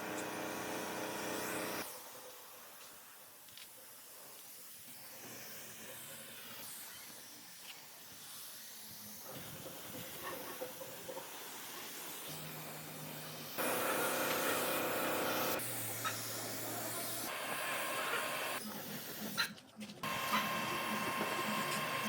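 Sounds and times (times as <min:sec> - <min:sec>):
machine hum and whine: 0:13.6 - 0:15.6.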